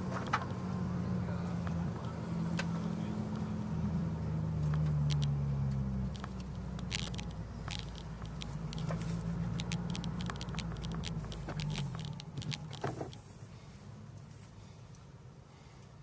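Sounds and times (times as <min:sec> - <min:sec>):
sharp clicks and rattles: 0:00.0 - 0:00.6, 0:04.6 - 0:13.3
car engine humming: 0:00.0 - 0:14.8.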